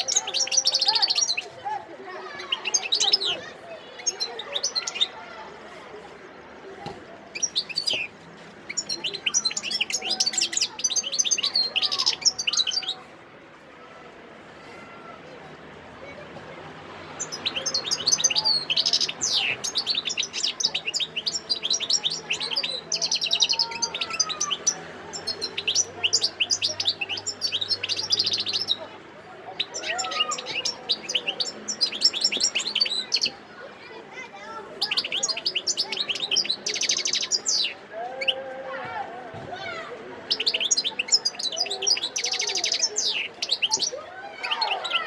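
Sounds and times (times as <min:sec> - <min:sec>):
goldfinch twittering song: 0:02.3 - 0:05.2, 0:07.3 - 0:08.1, 0:08.7 - 0:13.0, 0:17.2 - 0:28.8, 0:29.5 - 0:33.4, 0:34.8 - 0:37.8, 0:40.3 - 0:45.0.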